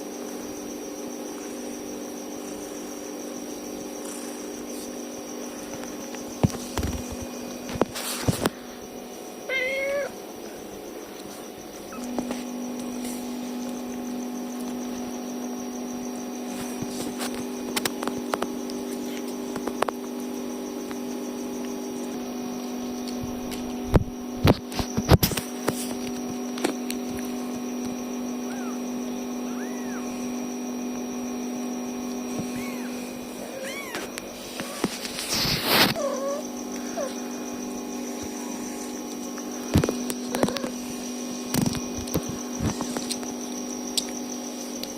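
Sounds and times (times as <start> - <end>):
electrical hum: 0.0 - 44.9
kitten mewing: 9.5 - 10.2, 29.5 - 30.1, 32.4 - 34.8, 35.6 - 37.2.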